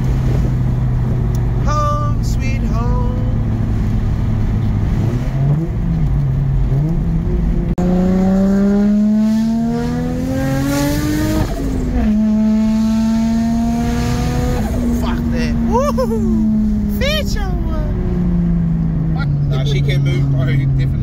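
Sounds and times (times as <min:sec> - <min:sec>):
car engine from inside cabin: 0:00.0 - 0:21.0.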